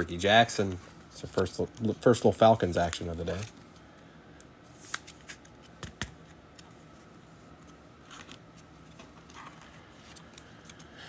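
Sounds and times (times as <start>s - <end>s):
cards clicking and rustling: 0.6s - 3.8s, 4.8s - 6.8s, 7.6s - 11.0s.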